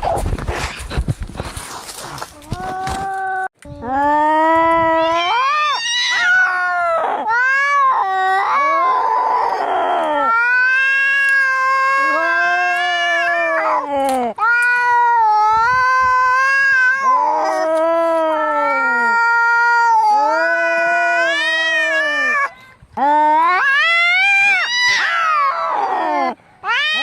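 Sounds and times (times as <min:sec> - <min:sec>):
cats yowling: 0:04.8 - 0:22.5, 0:23.1 - 0:27.0
cat rasping cry: 0:05.0 - 0:22.5, 0:23.4 - 0:27.0.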